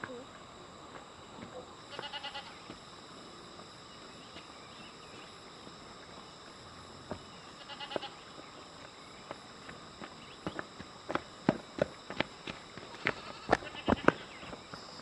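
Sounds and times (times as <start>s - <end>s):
high-pitched hum: 0.0s - 15.0s
bleat-like animal call: 1.9s - 2.6s, 7.6s - 8.2s, 13.0s - 14.1s.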